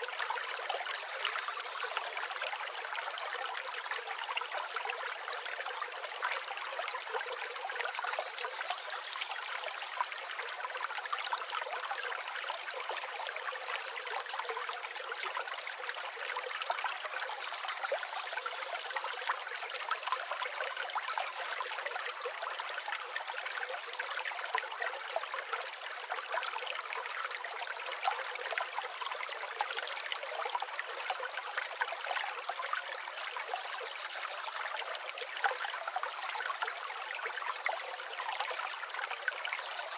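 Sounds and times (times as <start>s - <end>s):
river flowing over stones: 0.0s - 39.9s
faint bird chirp: 7.9s - 9.6s, 19.5s - 21.6s.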